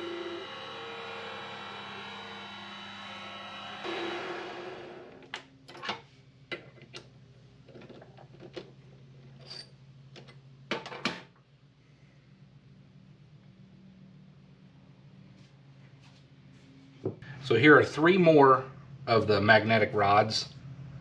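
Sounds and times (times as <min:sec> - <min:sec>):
low machine hum: 0:00.0 - 0:05.6, 0:11.7 - 0:21.0.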